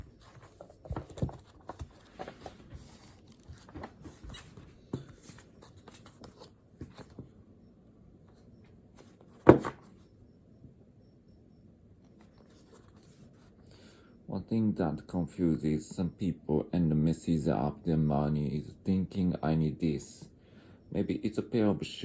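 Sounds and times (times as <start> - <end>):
paper rustling: 0.0 - 7.3.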